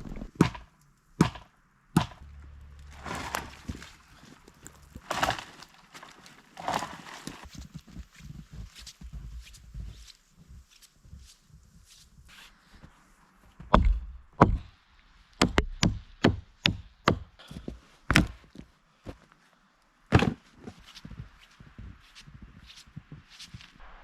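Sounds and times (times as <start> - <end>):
wooden knocks and cracks: 0.0 - 7.5
footsteps in snow: 2.8 - 13.6, 20.5 - 24.0.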